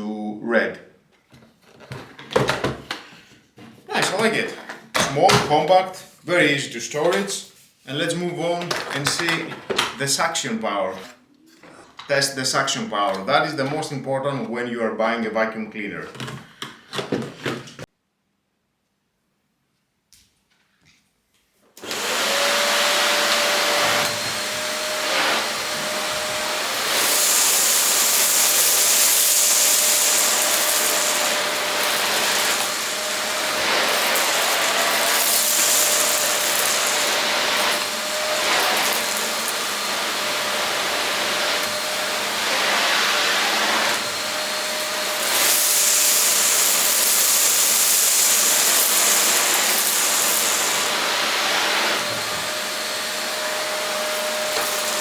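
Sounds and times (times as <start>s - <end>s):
vacuum cleaner running: 21.8s - 55.0s.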